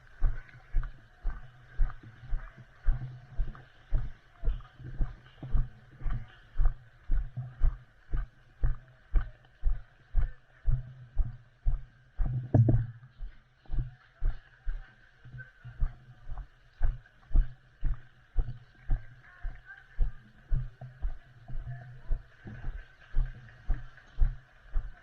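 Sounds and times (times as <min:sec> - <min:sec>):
footsteps dull thumps: 0:00.0 - 0:14.8.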